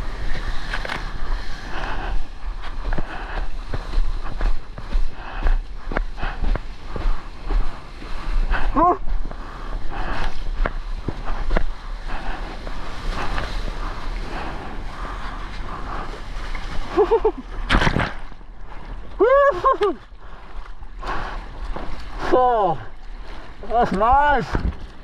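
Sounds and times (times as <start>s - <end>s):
sea water sloshing and splashing: 0.0s - 25.0s
loud water splash: 17.6s - 18.4s.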